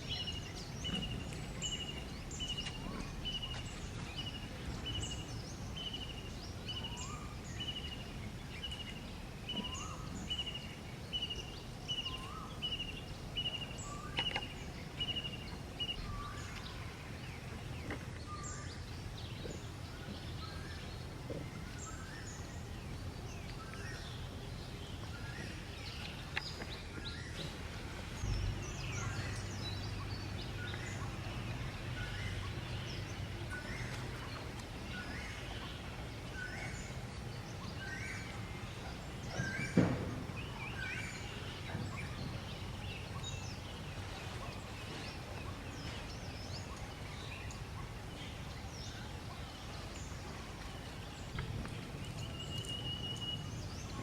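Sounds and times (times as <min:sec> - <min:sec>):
steady low rumble: 0:00.0 - 0:39.3, 0:50.1 - 0:52.8
birds chirping: 0:00.0 - 0:54.0.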